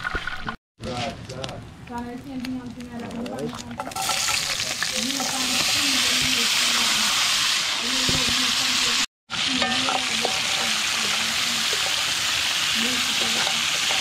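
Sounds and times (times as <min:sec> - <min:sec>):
vegetables being stirred: 0:02.6 - 0:06.8, 0:09.3 - 0:14.0
vegetables sizzling in hot oil: 0:03.8 - 0:14.0.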